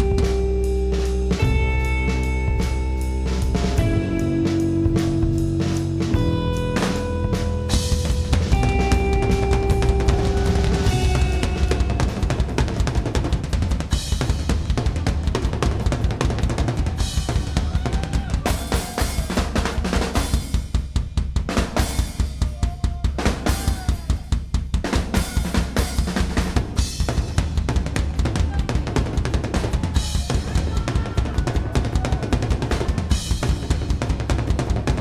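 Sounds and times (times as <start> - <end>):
rock band playing live: 0.0 - 13.6
kick drum and snare: 4.9 - 35.0.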